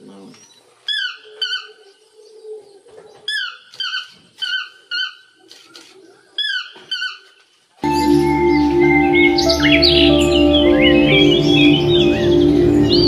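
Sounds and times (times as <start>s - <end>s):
loud music: 7.8s - 13.0s.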